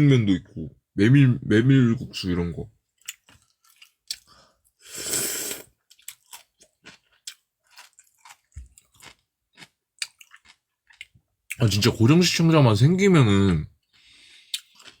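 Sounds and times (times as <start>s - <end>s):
quiet chewing clicks: 3.0s - 4.4s, 5.9s - 11.2s, 13.8s - 15.0s
person slurping noodles: 4.8s - 5.7s.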